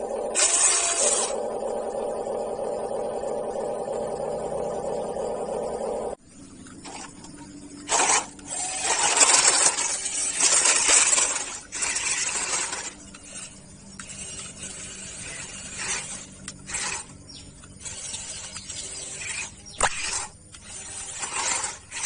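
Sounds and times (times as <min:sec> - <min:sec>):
rc car tyres crunching on ground: 0:06.5 - 0:22.0.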